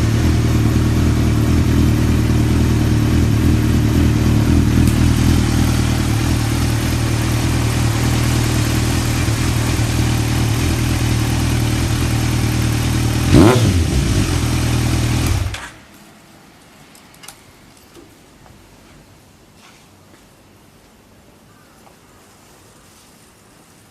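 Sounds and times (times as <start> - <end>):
motorcycle engine idling: 0.0 - 15.7.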